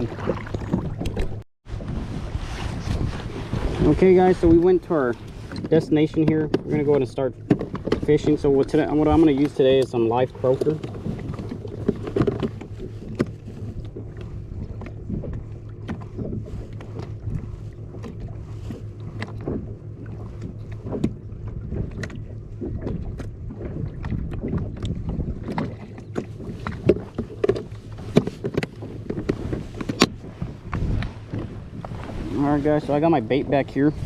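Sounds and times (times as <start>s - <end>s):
choppy water: 0.0s - 34.0s
wind: 0.0s - 34.0s
knocks and clicks on plastic kayak: 4.4s - 17.4s, 18.0s - 32.2s.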